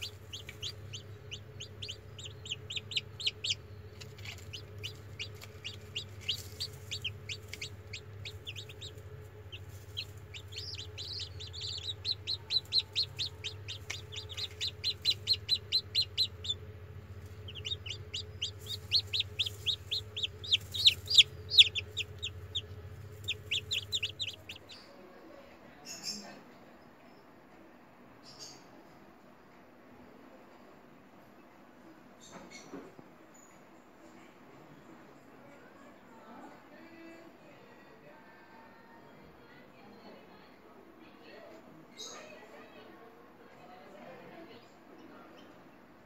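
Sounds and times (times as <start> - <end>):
chicks peeping: 0.0 - 24.9
steady low hum: 0.0 - 25.0.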